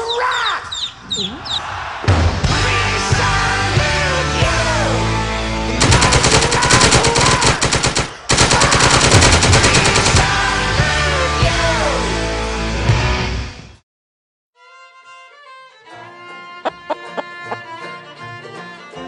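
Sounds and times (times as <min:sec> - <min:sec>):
music: 0:01.8 - 0:06.7, 0:09.6 - 0:13.8, 0:14.6 - 0:19.0
rapid automatic gunfire: 0:05.8 - 0:10.6.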